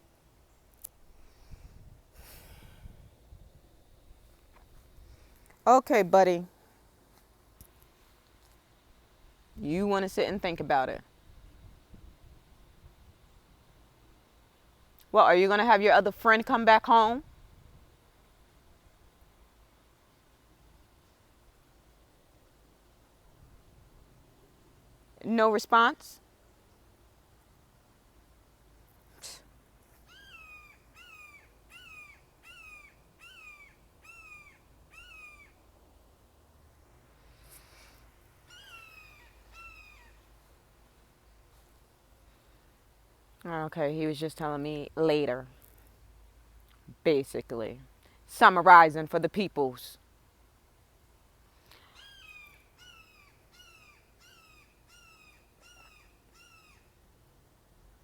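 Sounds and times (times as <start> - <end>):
hawk crying: 30.1 - 35.6, 38.5 - 40.2, 51.8 - 56.9.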